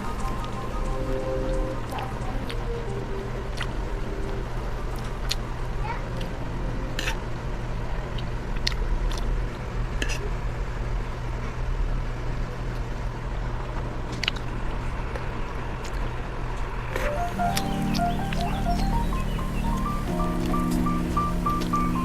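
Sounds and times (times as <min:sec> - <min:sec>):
music: 0:00.0 - 0:05.4, 0:17.0 - 0:22.0
steady low hum: 0:17.1 - 0:22.0.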